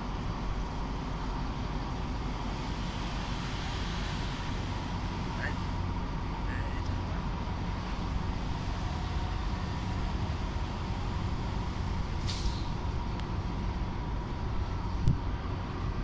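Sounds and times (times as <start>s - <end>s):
train rumbling: 0.0s - 16.0s
short hiss: 12.2s - 12.8s.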